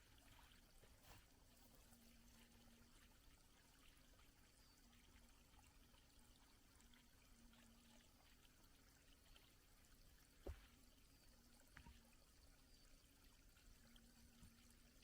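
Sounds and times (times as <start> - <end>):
faint steady hiss: 0.0 - 15.0
soft knock: 10.4 - 10.7.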